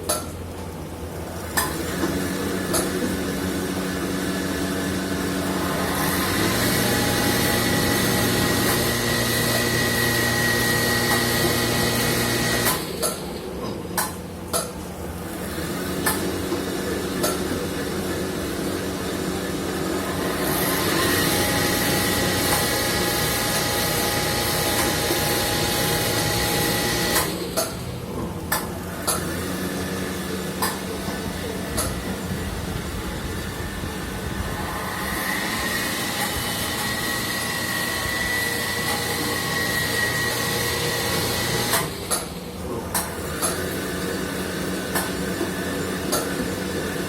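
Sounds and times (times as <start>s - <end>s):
machine running with whine: 0.0s - 47.0s
machine clicks and knocks: 12.6s - 14.8s.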